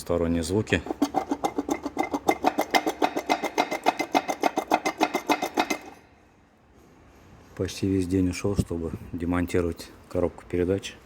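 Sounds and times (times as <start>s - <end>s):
rapid even knocking: 0.8s - 6.0s.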